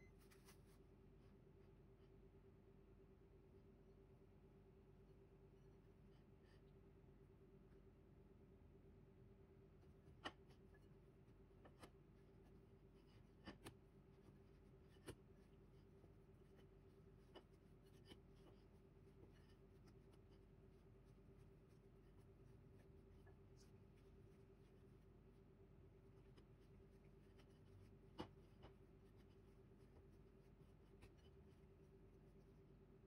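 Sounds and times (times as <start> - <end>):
faint steady hum: 0.0 - 33.0
hands kneading dough in a bowl: 9.8 - 33.0.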